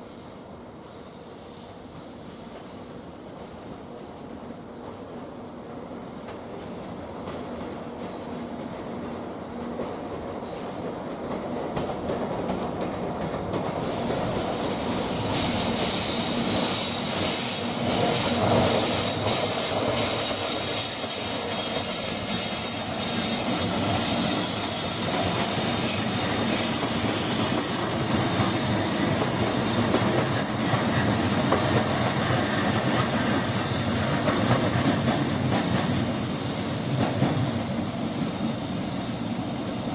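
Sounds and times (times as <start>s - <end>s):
train passing through station: 0.0s - 39.9s
high wheel squeal: 15.3s - 37.6s.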